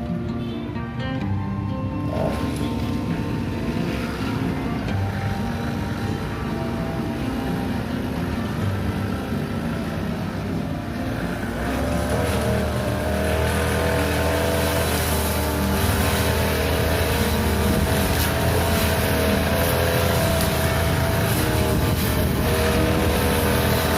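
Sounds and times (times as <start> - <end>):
lawn mower engine running: 0.0 - 23.9.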